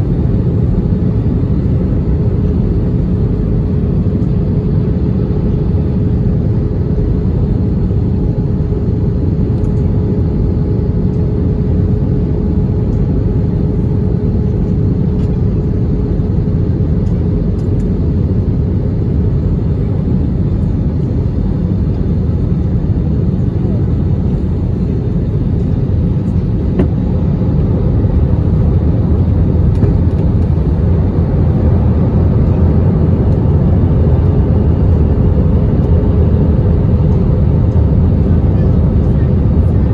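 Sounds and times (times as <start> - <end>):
airliner cabin engine rumble: 0.0 - 39.9
faint steady hum: 0.0 - 39.9.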